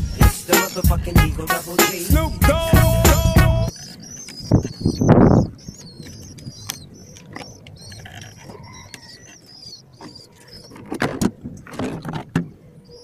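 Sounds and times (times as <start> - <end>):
birds chirping: 0.0 - 13.0
small clicks: 5.8 - 10.9.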